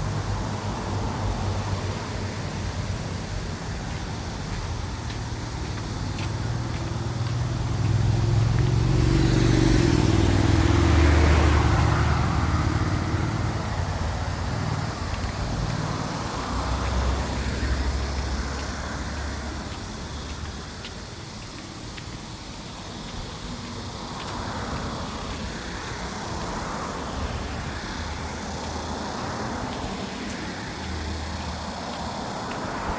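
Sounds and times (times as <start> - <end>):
car passing close by: 0.0 - 20.8
quieter vehicle passing: 0.0 - 32.9
street traffic: 0.0 - 32.9.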